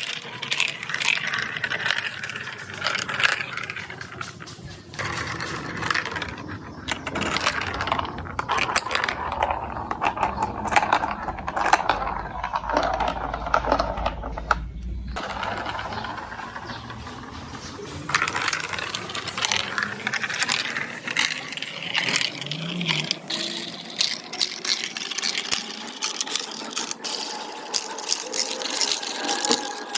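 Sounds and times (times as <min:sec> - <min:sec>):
marbles clattering through plastic run: 0:00.0 - 0:29.9
low hum: 0:00.9 - 0:23.6.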